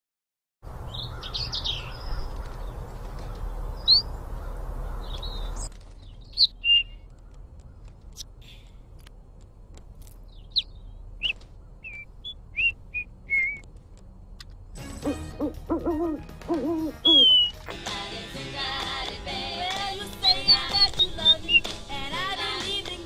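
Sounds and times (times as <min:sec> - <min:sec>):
small bird chirps and tweets: 0:00.9 - 0:08.8, 0:10.2 - 0:13.7, 0:17.0 - 0:17.7, 0:20.2 - 0:21.8
music: 0:14.7 - 0:23.0
low hooting calls: 0:15.0 - 0:17.6.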